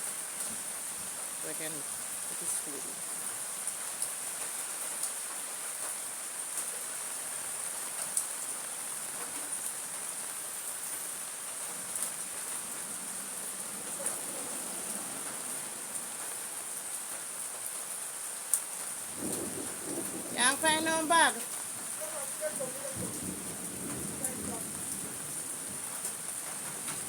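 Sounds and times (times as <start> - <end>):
steady rain falling: 0.0 - 27.0
raindrops tapping: 11.4 - 27.0.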